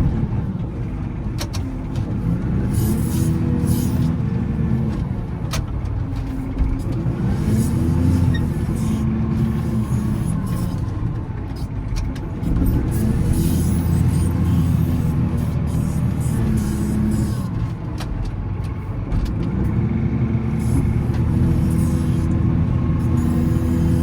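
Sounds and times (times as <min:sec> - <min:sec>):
wheel loader diesel engine: 0:00.0 - 0:24.0.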